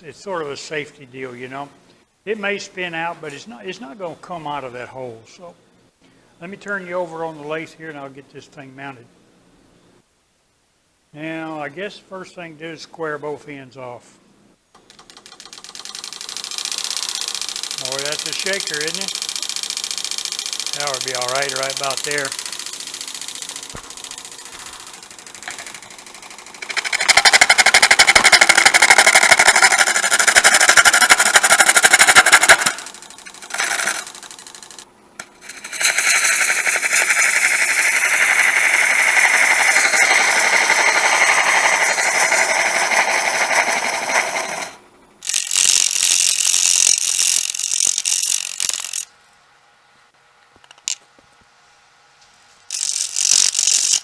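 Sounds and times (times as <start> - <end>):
turning tool chattering on wood lathe: 15.0 - 49.1, 52.7 - 54.0.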